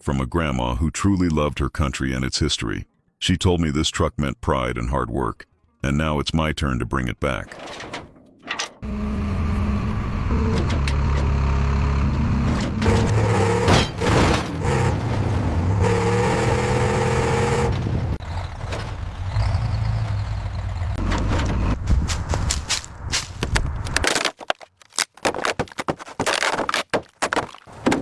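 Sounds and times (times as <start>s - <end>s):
rough mechanical sound: 7.5s - 21.9s
engine knocks: 8.8s - 22.6s
vehicle engine humming: 8.8s - 23.9s.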